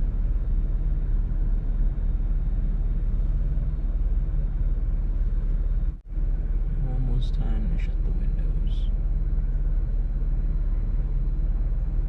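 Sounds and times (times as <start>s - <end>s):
car interior low rumble: 0.0s - 12.0s.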